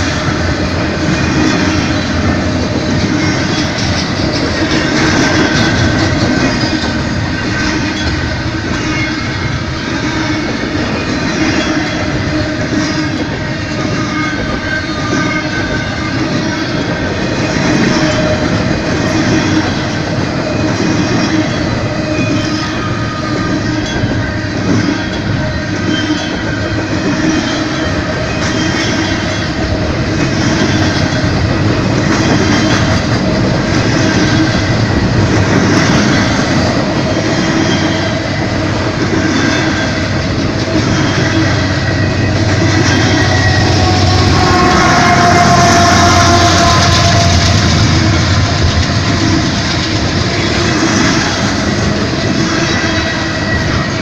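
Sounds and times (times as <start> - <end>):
train wheels rumbling on rails: 0.0 - 54.0
wheels squealing: 30.2 - 54.0.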